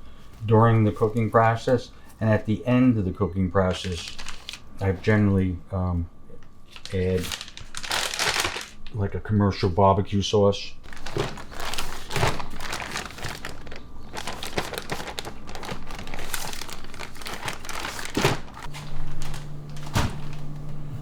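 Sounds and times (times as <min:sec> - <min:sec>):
crinkling and rustling: 0:00.0 - 0:02.6, 0:03.7 - 0:05.3, 0:06.7 - 0:09.0, 0:10.8 - 0:21.0
steady low hum: 0:00.0 - 0:21.0.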